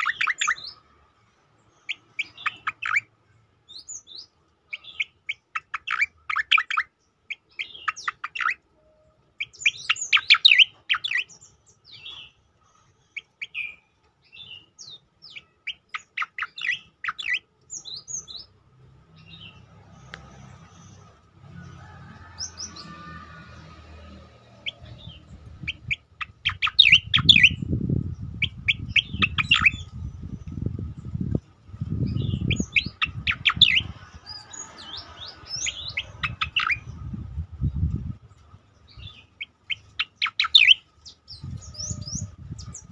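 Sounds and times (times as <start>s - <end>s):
low rumbling noise: 18.6s - 39.1s.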